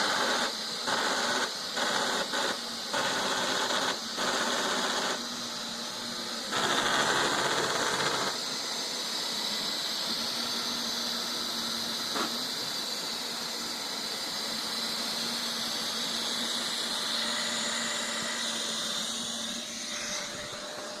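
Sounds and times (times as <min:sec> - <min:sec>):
robot vacuum whining: 0:05.1 - 0:21.0.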